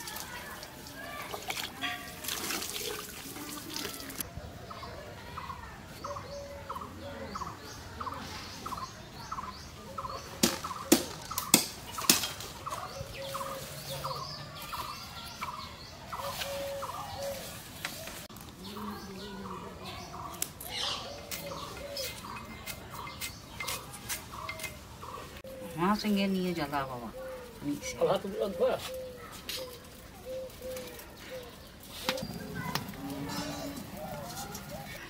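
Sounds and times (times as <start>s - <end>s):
water splashing: 0.0s - 4.2s
bird calling: 5.4s - 35.0s.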